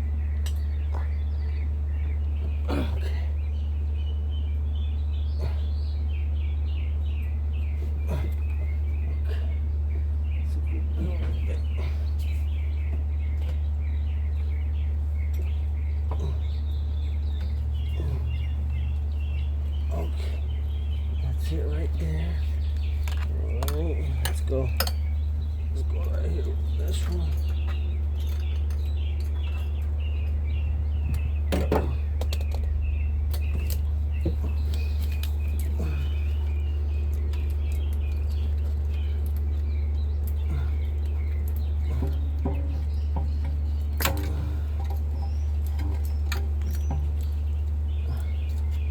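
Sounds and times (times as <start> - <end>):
small birds chirping: 0.0 - 48.9
steady low hum: 0.0 - 48.9
sharp clicks and knocks: 22.6 - 25.9, 31.0 - 35.8, 36.5 - 48.9.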